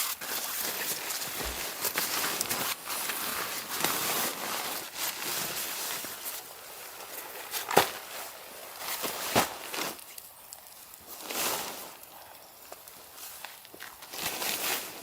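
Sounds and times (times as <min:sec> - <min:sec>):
footsteps crunching in snow: 0:00.0 - 0:10.1.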